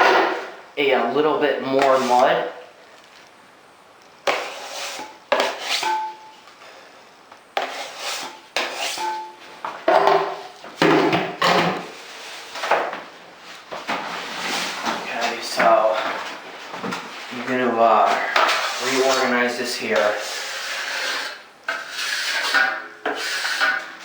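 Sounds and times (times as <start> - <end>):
drywall knife scraping: 4.2 - 6.1, 7.6 - 9.2, 20.0 - 23.9.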